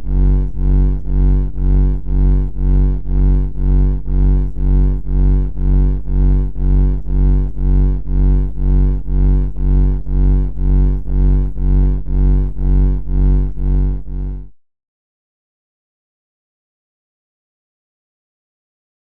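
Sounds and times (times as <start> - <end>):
low buzzy pulsing tone: 0.0 - 14.6.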